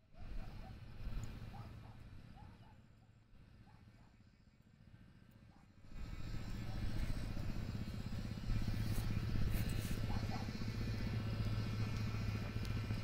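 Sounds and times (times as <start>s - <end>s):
motorcycle engine running: 3.4s - 13.0s.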